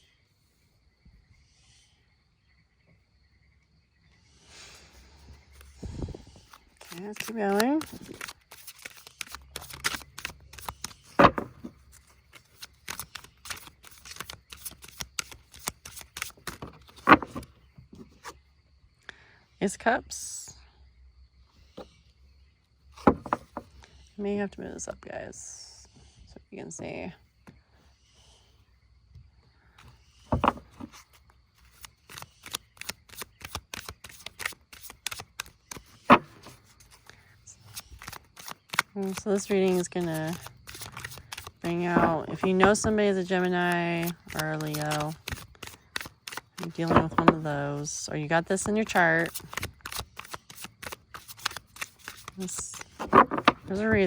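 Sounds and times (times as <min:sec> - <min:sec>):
cards riffling and rustling: 0:05.5 - 0:18.4, 0:23.0 - 0:23.7, 0:29.8 - 0:47.8, 0:48.5 - 0:54.0.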